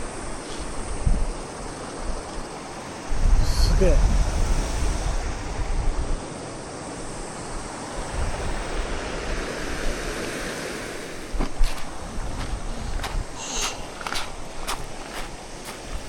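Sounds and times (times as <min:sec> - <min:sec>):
wind buffeting the microphone: 0:00.0 - 0:16.0
mountain stream rushing: 0:04.4 - 0:16.0.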